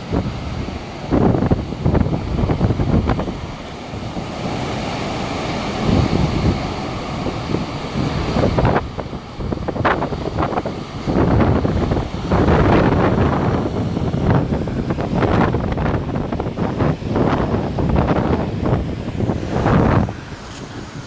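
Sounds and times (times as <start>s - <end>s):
hurricane wind gusting: 0.0s - 21.0s
wind buffeting microphone: 0.0s - 21.0s.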